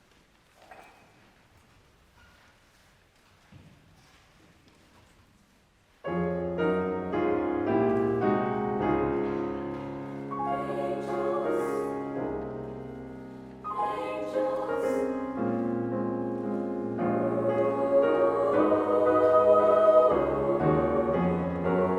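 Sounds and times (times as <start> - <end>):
choir singing with piano: 6.2 - 21.9.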